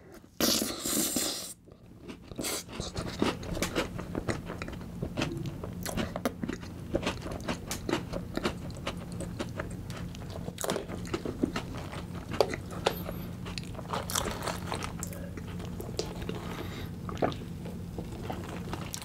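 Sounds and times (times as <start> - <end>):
wet chewing and mouth clicks: 2.2 - 16.3.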